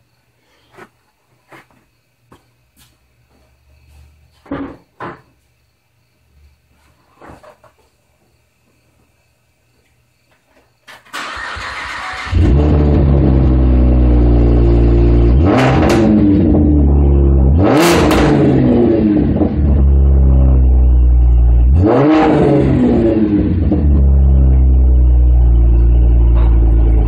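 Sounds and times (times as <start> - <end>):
car engine idling and revving: 11.2 - 27.0.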